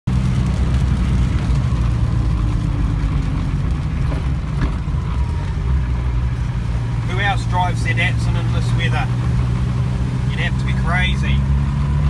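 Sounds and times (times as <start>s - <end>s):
tyres hissing on wet road: 0.1s - 4.3s
low engine drone: 0.1s - 12.0s.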